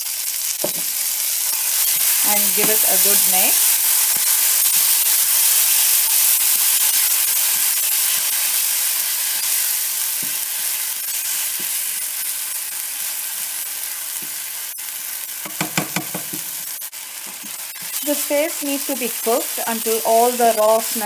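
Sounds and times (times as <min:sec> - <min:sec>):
paste sizzling in hot oil: 0:00.0 - 0:21.0
spatula scraping pan: 0:01.7 - 0:04.3.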